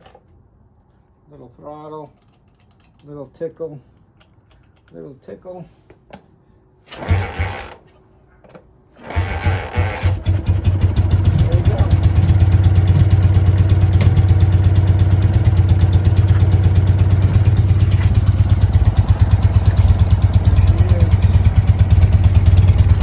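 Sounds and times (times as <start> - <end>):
motorcycle engine idling: 7.0 - 7.7, 9.0 - 23.0.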